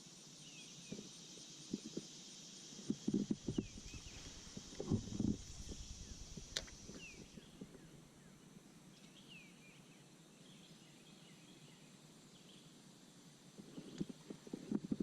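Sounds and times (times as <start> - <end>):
faint falling chirps: 3.4 - 8.0.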